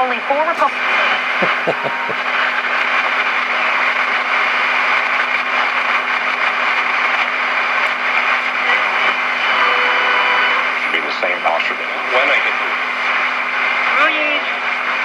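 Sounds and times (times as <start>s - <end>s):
radio static hiss: 0.0s - 15.0s
steady low hum: 0.0s - 15.0s
faint radio whistles: 0.5s - 2.7s, 8.6s - 11.8s.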